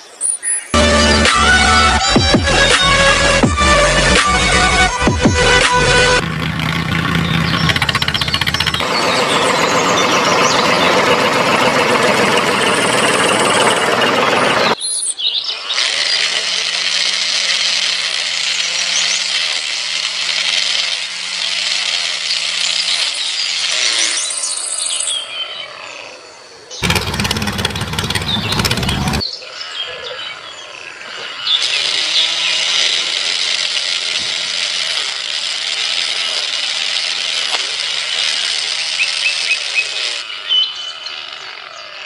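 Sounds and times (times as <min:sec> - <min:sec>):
engine running with low hum: 0:00.8 - 0:14.8, 0:26.8 - 0:29.2
harsh machine engine running: 0:00.8 - 0:14.8, 0:15.8 - 0:24.3, 0:26.8 - 0:29.2, 0:32.0 - 0:40.3.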